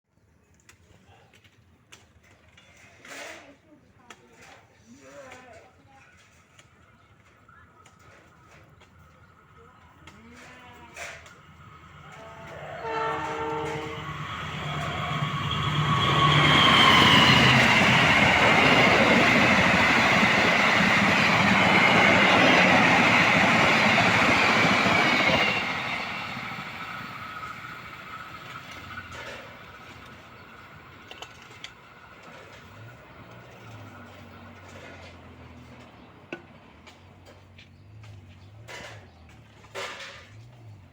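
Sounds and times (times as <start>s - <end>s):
train passing at speed: 11.0s - 38.1s
locomotive horn: 12.0s - 16.6s.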